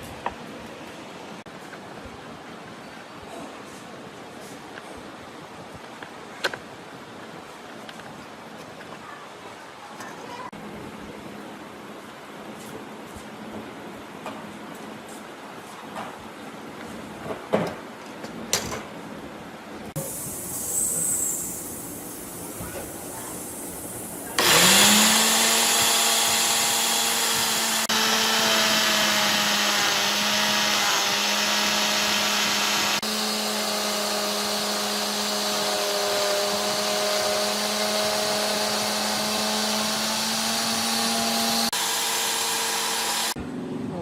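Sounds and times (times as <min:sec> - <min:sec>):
angle grinder motor spinning: 0:24.4 - 0:43.4.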